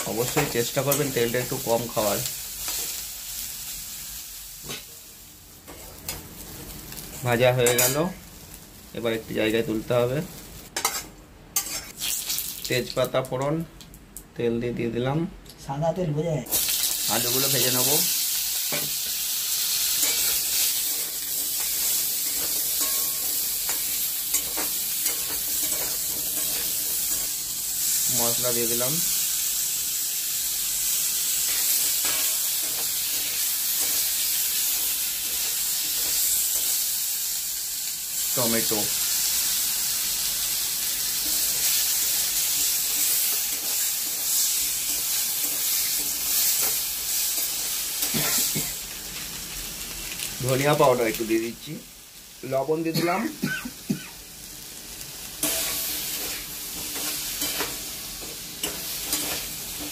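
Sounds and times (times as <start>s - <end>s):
potatoes sizzling in hot oil: 0.0s - 10.8s, 11.6s - 13.4s, 16.5s - 59.9s
spatula scraping a pan: 11.6s - 12.0s.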